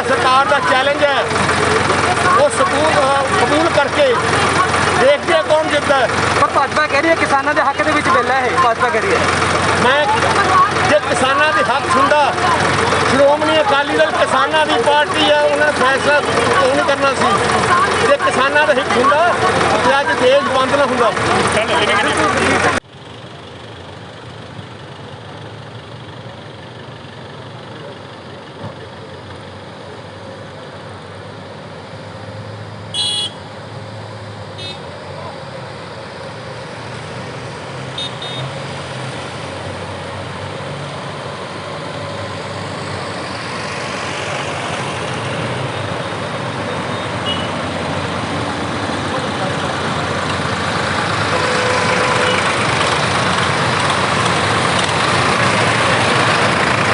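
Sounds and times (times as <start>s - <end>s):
tractor engines running: 0.0s - 56.9s
vehicle horn toot: 32.9s - 33.5s, 34.6s - 34.9s, 38.0s - 38.6s, 47.0s - 47.6s, 51.2s - 52.6s.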